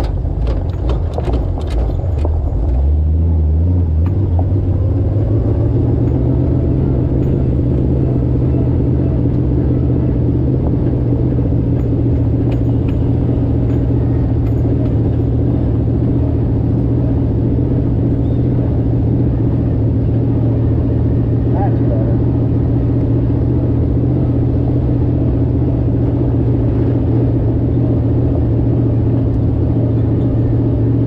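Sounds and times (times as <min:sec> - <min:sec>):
car engine cruising: 0:00.0 - 0:31.0.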